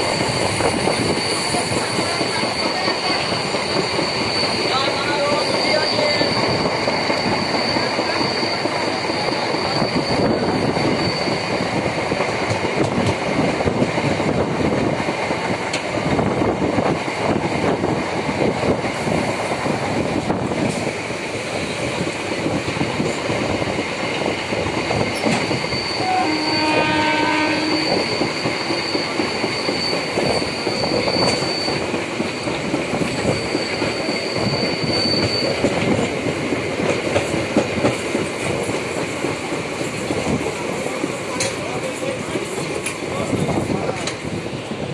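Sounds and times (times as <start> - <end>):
train wheels rumbling on rails: 0.0 - 44.9
train horn: 26.0 - 28.1.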